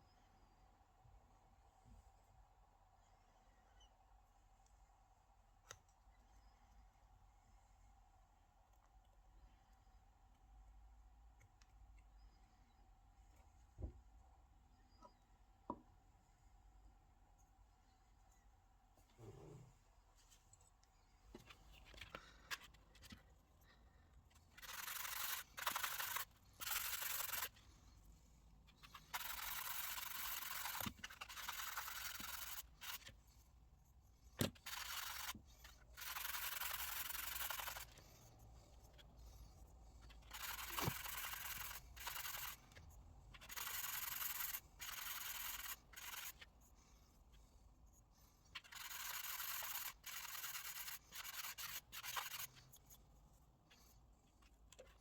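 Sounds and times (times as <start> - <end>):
hand scraping small part: 24.3 - 55.0.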